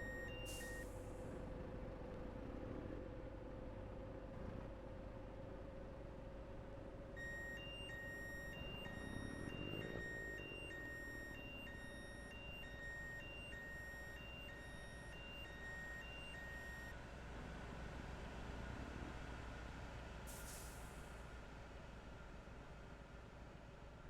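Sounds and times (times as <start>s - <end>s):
two-tone warning beeper: 0.0s - 0.8s, 7.2s - 16.9s.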